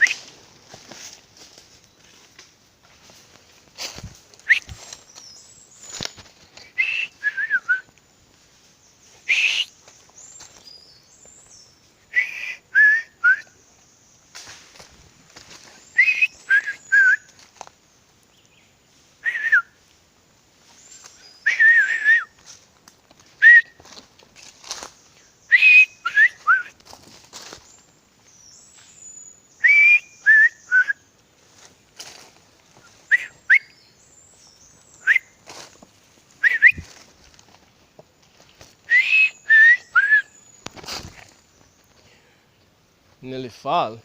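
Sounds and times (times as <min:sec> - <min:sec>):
person whistling bird calls: 0:00.0 - 0:00.3, 0:04.4 - 0:05.0, 0:06.6 - 0:07.9, 0:09.2 - 0:09.8, 0:12.1 - 0:13.6, 0:15.9 - 0:17.3, 0:19.2 - 0:19.8, 0:21.3 - 0:22.4, 0:23.4 - 0:23.8, 0:25.5 - 0:26.8, 0:29.6 - 0:31.0, 0:32.8 - 0:33.9, 0:34.9 - 0:35.4, 0:36.4 - 0:37.0, 0:38.8 - 0:40.6
crackles in brush: 0:00.0 - 0:06.8, 0:14.3 - 0:18.3, 0:20.6 - 0:25.3, 0:26.3 - 0:28.0, 0:31.4 - 0:33.2, 0:34.7 - 0:38.9, 0:40.5 - 0:42.0.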